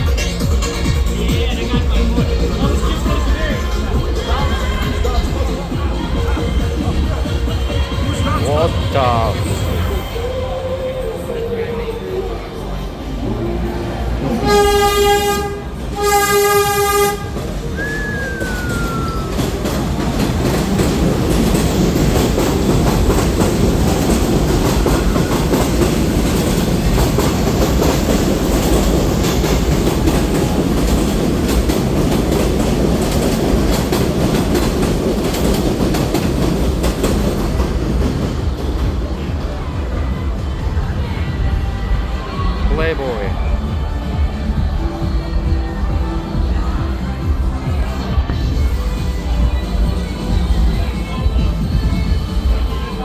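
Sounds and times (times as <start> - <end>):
train rumbling past: 0.0 - 53.0
train horn blasts: 14.3 - 17.8
wheels clattering on rails: 14.3 - 40.9.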